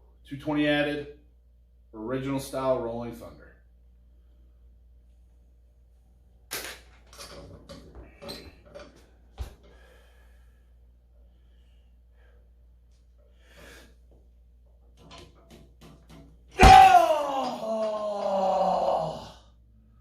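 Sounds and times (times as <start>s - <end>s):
weights clicking and clattering: 6.5s - 9.8s, 14.7s - 16.6s
sharp breath: 13.3s - 14.0s.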